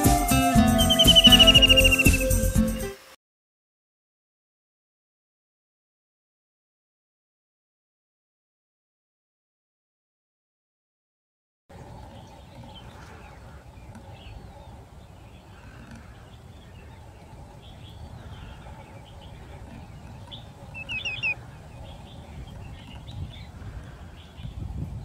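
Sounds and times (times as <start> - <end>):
short falling whistled notes: 0.0 - 2.9
faint short bird calls: 0.8 - 2.2, 12.2 - 24.7.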